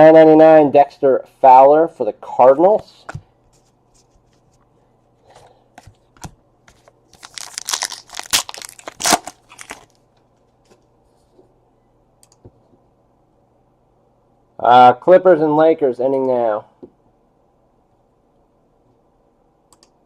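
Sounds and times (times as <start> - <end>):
wrapper tearing and crinkling: 7.1 - 10.0.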